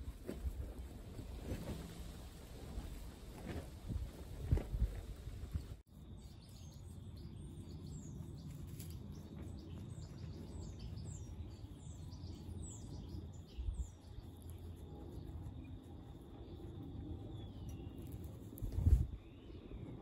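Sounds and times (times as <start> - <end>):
small birds chirping: 5.5 - 20.0
low outdoor rumble: 7.0 - 20.0.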